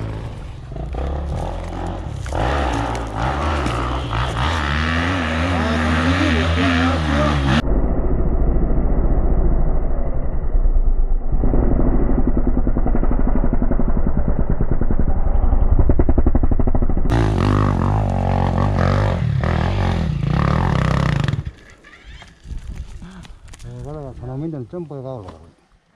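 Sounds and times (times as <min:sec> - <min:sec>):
dirt bike engine revving: 0:00.0 - 0:07.6, 0:17.1 - 0:22.2.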